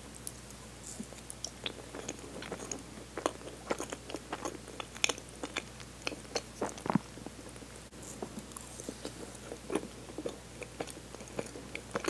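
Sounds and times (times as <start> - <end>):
biting and chewing soft cake: 0.2 - 12.0.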